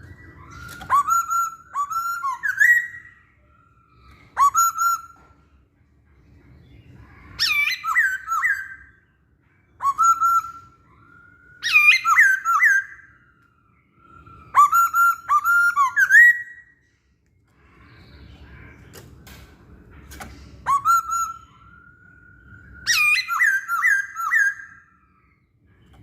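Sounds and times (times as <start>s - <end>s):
bird singing whistled phrases: 0.0s - 5.4s, 7.3s - 9.1s, 9.7s - 16.8s, 20.5s - 26.0s.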